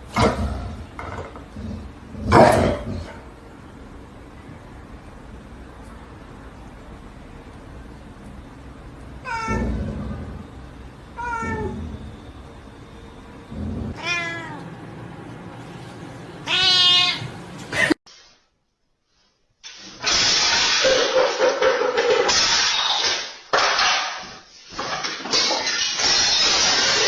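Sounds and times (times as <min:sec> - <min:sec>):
cat meowing: 0:09.2 - 0:09.7, 0:11.2 - 0:11.8, 0:14.0 - 0:14.6, 0:16.4 - 0:17.3.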